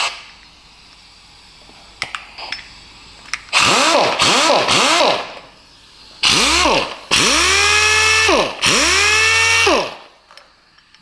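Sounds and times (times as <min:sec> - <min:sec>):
air sander whining: 0:03.5 - 0:10.2.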